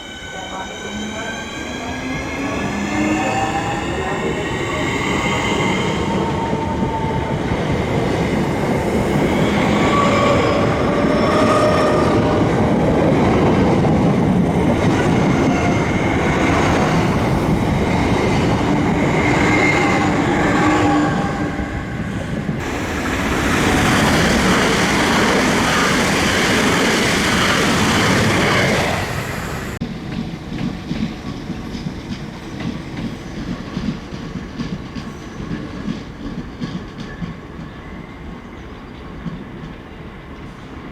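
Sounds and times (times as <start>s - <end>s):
train wheels clattering over rails: 22.5s - 37.8s.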